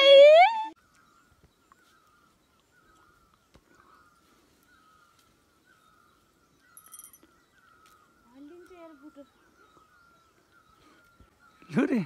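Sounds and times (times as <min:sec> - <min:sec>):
sharp high bird chirp: 0:06.6 - 0:07.3.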